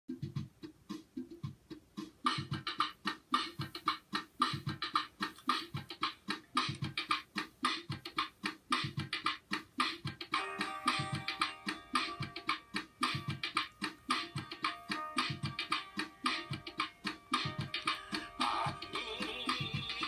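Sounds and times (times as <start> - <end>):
fast crisp percussion hits: 0.1 - 20.0
pitched instrument melody: 10.3 - 20.0.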